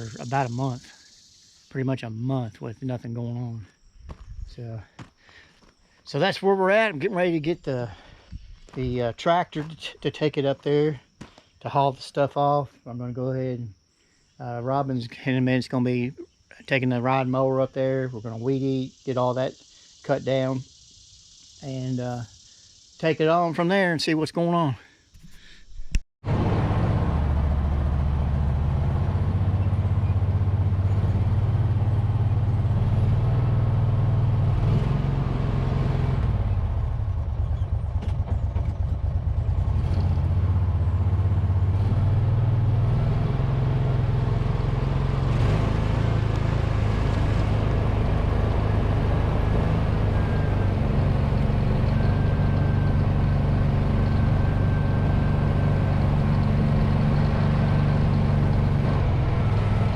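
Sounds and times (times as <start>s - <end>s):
tractor engine running: 26.2s - 59.9s.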